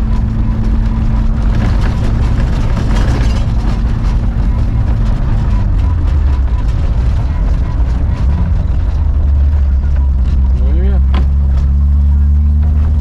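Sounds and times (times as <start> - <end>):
body knocks and rattles: 0.0 - 13.0
van engine running: 0.0 - 13.0.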